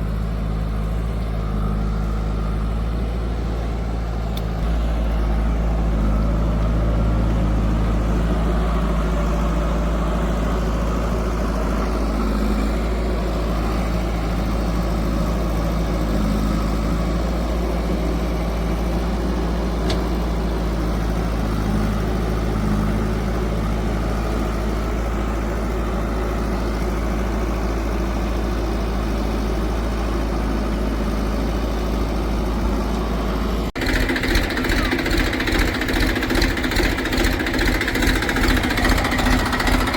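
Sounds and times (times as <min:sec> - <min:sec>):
diesel engine running: 0:00.0 - 0:39.9
pulsing engine knock: 0:33.8 - 0:39.9.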